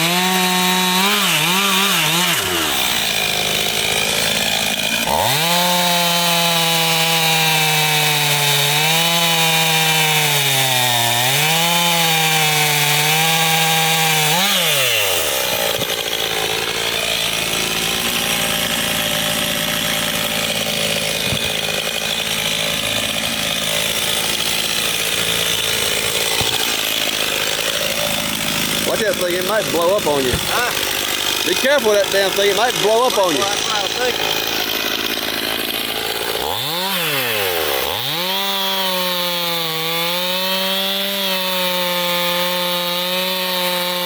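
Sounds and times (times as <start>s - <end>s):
chainsaw running at high speed: 0.0s - 44.0s
rough sawing noise: 0.0s - 44.0s.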